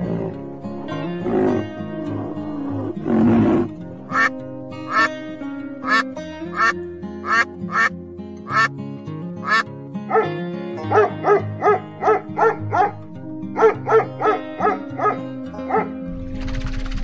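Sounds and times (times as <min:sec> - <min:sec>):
background music: 0:00.0 - 0:17.0
rough duck calls: 0:03.2 - 0:05.2, 0:05.8 - 0:07.9, 0:08.5 - 0:08.7, 0:09.4 - 0:11.2
duck quacking: 0:04.1 - 0:05.2, 0:05.8 - 0:07.9, 0:08.5 - 0:08.7, 0:09.4 - 0:11.4.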